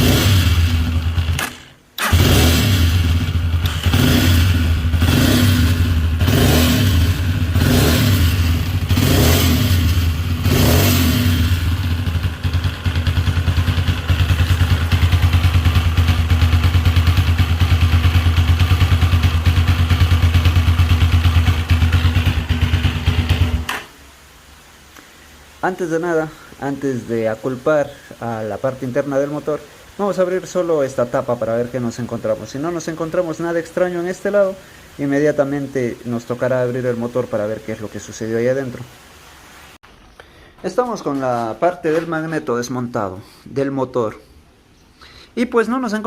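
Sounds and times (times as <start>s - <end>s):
motorcycle engine revving and idling: 0.0s - 23.9s.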